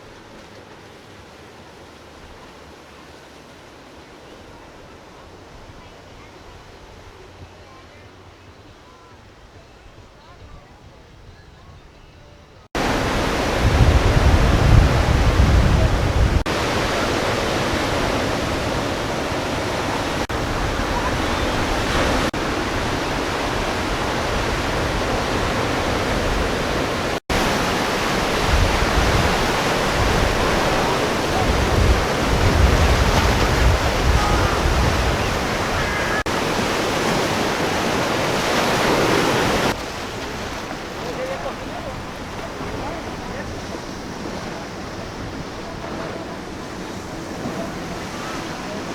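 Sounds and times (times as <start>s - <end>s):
wind buffeting microphone: 9.2s - 48.9s
surf rushing: 12.7s - 48.9s.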